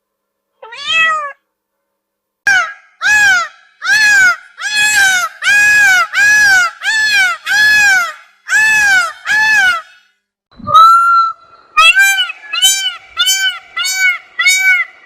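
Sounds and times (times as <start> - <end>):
animal wailing cry: 10.7 - 15.0.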